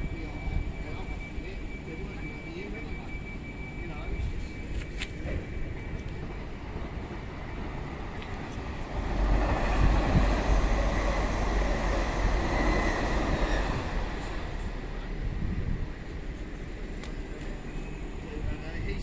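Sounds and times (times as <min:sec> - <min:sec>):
faint high whine: 0:00.0 - 0:08.9
train rumbling: 0:03.8 - 0:19.0.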